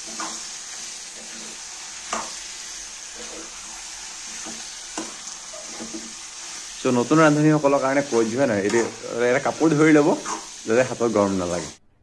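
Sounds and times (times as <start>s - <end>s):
metal spoon scraping a pan: 0.0s - 6.7s, 8.0s - 10.6s
chicken sizzling in oil: 0.0s - 11.8s.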